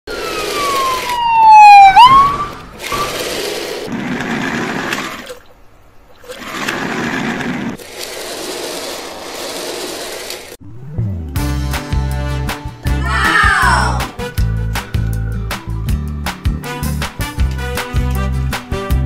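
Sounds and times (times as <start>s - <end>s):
whistle-like sliding tone: 0.3s - 3.3s.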